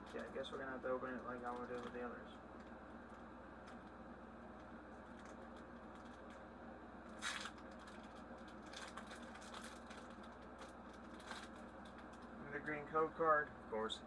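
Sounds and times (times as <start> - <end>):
foil wrapper crinkling: 0.0 - 2.0, 4.6 - 6.4, 7.1 - 12.3
low steady hum: 0.0 - 14.0.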